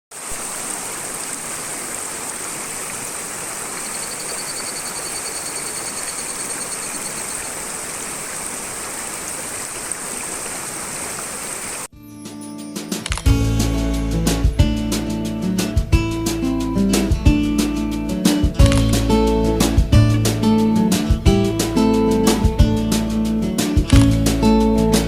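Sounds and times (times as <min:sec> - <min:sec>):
stream rushing: 0:00.1 - 0:11.9
cicada pulsing trill: 0:03.2 - 0:08.4.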